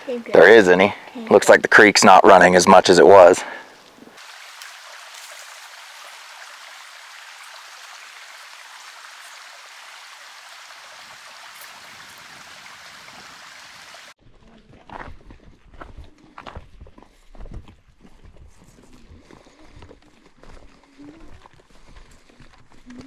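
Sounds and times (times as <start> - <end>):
creek water rushing: 0.0 - 14.2.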